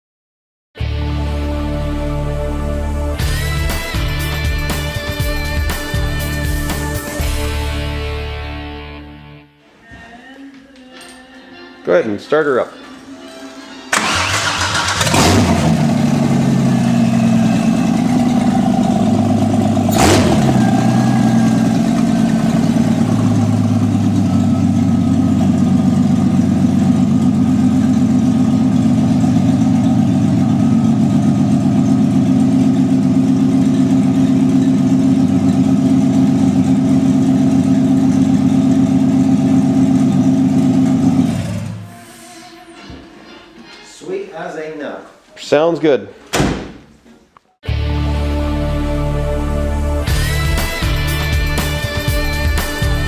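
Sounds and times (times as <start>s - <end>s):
car engine idling: 13.9s - 41.9s
person speaking: 43.9s - 46.2s.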